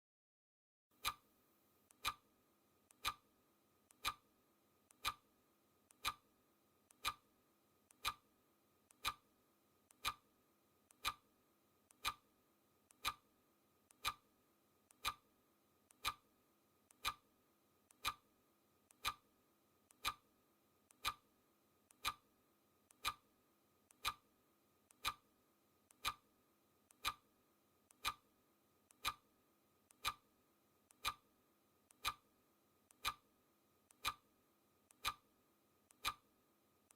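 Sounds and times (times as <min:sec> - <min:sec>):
clock ticking: 0:01.0 - 0:01.2, 0:01.9 - 0:02.2, 0:02.9 - 0:03.2, 0:03.9 - 0:04.2, 0:04.9 - 0:05.3, 0:05.9 - 0:06.2, 0:06.9 - 0:07.3, 0:07.9 - 0:08.3, 0:08.9 - 0:09.3, 0:09.9 - 0:10.3, 0:10.9 - 0:11.3, 0:11.9 - 0:12.3, 0:12.9 - 0:13.3, 0:13.9 - 0:14.3, 0:14.9 - 0:15.3, 0:15.9 - 0:16.3, 0:16.9 - 0:17.3, 0:17.9 - 0:18.3, 0:18.9 - 0:19.3, 0:19.9 - 0:20.3, 0:20.9 - 0:21.3, 0:21.9 - 0:22.3, 0:22.9 - 0:23.3, 0:23.9 - 0:24.3, 0:24.9 - 0:25.3, 0:25.9 - 0:26.3, 0:26.9 - 0:27.3, 0:27.9 - 0:28.3, 0:28.9 - 0:29.3, 0:29.9 - 0:30.3, 0:30.9 - 0:31.3, 0:31.9 - 0:32.3, 0:32.9 - 0:33.3, 0:33.9 - 0:34.3, 0:34.9 - 0:35.3, 0:35.9 - 0:36.3.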